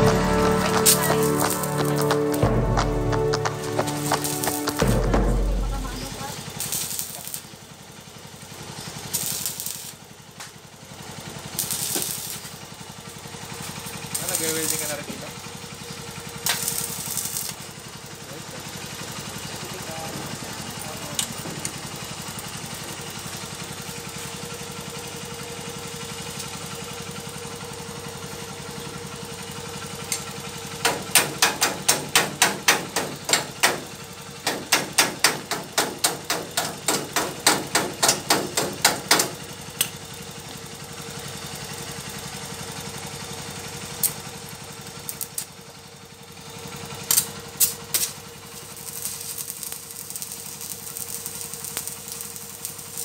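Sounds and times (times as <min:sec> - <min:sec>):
machine hum: 0:00.0 - 0:07.4.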